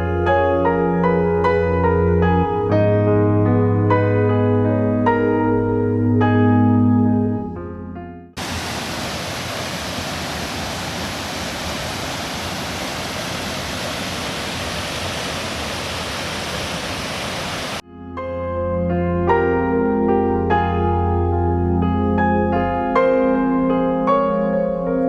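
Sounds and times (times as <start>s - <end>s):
soft piano music: 0.0s - 8.4s, 17.8s - 25.0s
rushing water: 8.4s - 17.8s.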